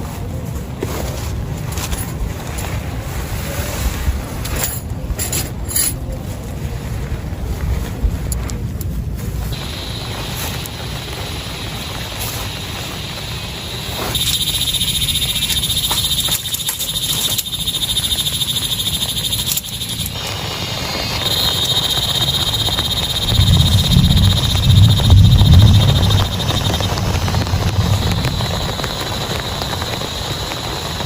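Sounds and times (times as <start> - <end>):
low rumble: 6.2 - 15.9, 19.9 - 31.0
heavy rain hissing: 9.5 - 31.0
frogs calling in chorus: 9.6 - 30.8.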